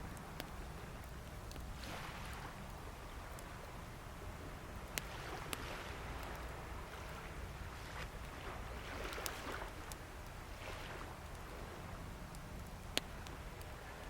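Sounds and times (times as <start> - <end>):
wood fire crackling and popping: 0.0 - 14.0
waves breaking on shore: 1.8 - 2.7, 4.8 - 12.1.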